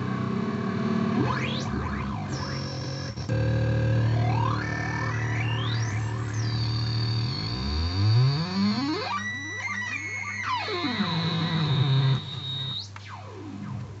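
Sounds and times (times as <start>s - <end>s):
oscillator noise box droning: 0.0s - 14.0s
high tone gliding downward: 3.9s - 13.8s.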